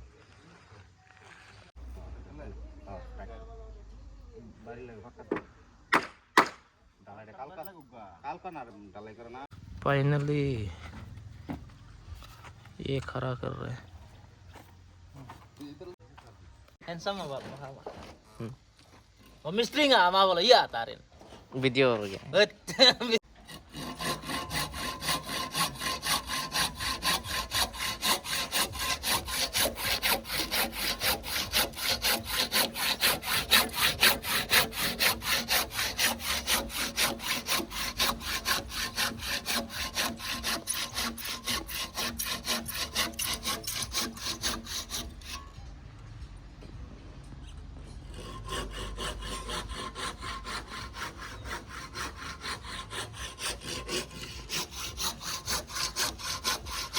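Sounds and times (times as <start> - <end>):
hand saw cutting wood: 23.1 - 45.6, 47.9 - 56.9.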